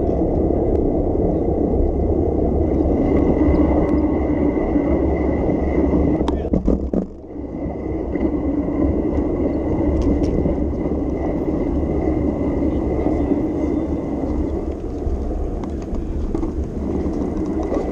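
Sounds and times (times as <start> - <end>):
wind and road noise rumble: 0.0 - 17.9.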